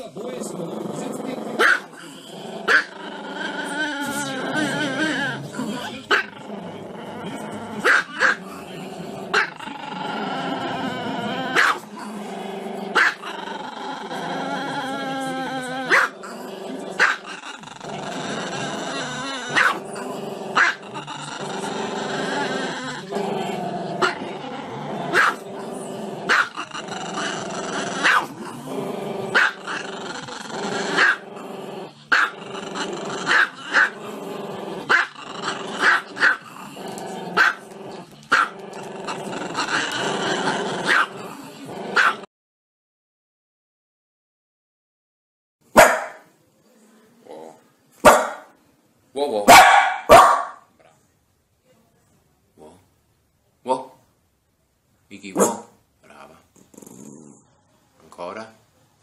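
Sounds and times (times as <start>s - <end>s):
dog yelping: 49.5s - 50.6s.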